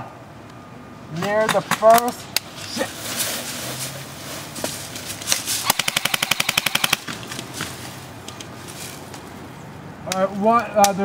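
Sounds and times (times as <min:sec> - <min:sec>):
airsoft gun full-auto burst: 0:05.6 - 0:07.1.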